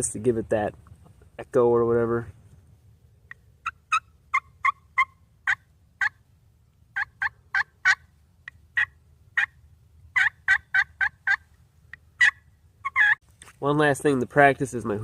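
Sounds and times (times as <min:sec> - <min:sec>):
turkey call yelps: 0:03.3 - 0:06.2, 0:06.9 - 0:13.2.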